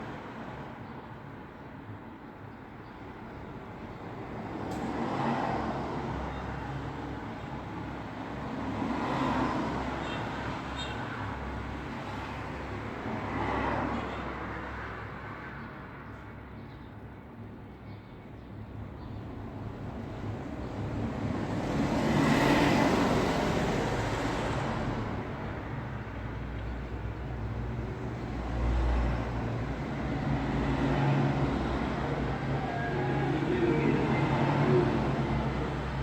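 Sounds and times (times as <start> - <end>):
traffic rumble: 19.3 - 36.0
vehicle passing close: 29.8 - 36.0.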